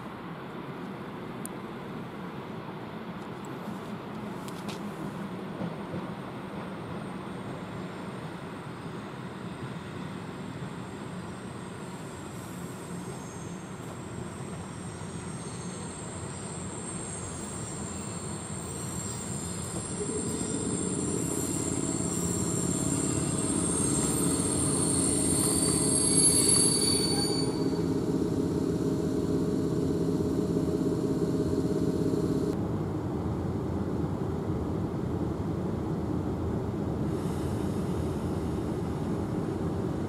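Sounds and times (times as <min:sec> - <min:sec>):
locomotive hum: 0:03.1 - 0:33.2
brake and wheel squeal: 0:12.4 - 0:28.1.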